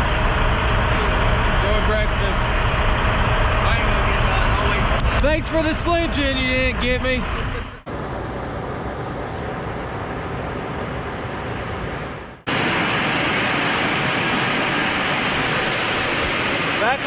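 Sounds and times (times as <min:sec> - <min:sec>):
truck road and engine noise: 0:00.0 - 0:16.9.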